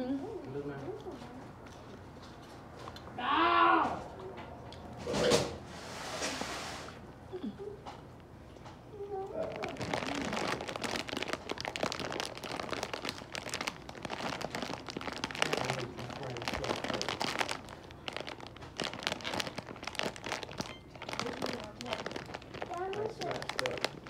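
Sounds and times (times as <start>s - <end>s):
chewing crunchy fries: 8.0s - 24.0s.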